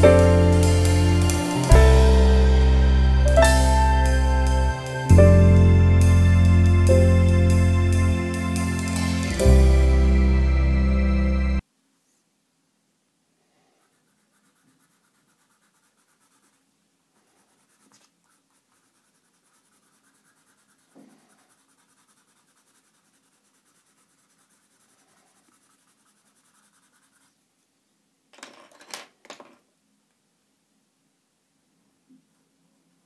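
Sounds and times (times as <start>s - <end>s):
pencil scratching on paper: 13.7s - 27.4s.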